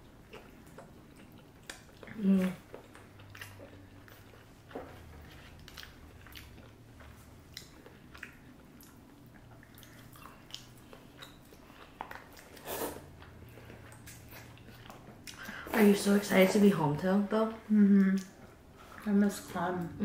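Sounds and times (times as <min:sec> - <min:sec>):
chewing and biting: 0:00.0 - 0:15.5
slurp of noodles: 0:12.5 - 0:13.1.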